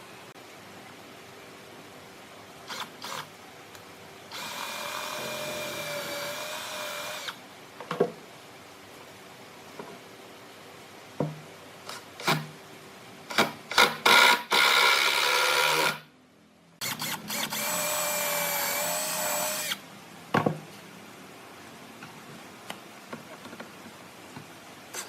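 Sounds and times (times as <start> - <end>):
electric drill whining: 2.7 - 3.3, 4.3 - 7.4, 14.1 - 16.0, 16.8 - 19.8.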